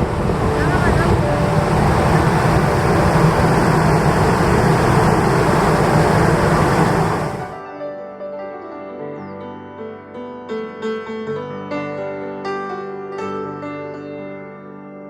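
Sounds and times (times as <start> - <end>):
ferry engine drone: 0.0 - 7.6
rushing water: 0.0 - 7.6
rushing wind: 0.0 - 7.6.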